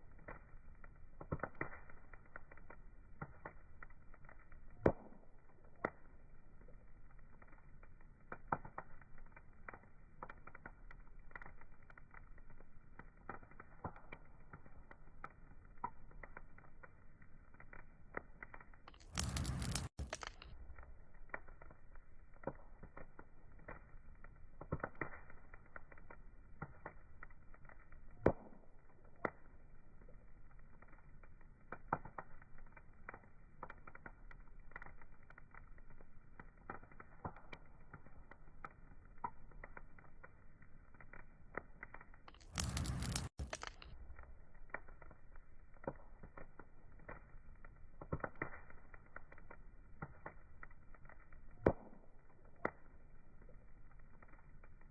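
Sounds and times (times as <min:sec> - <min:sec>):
wood fire crackling and popping: 0:00.0 - 0:54.9
bright rush of fire: 0:19.0 - 0:20.5, 0:42.4 - 0:43.9.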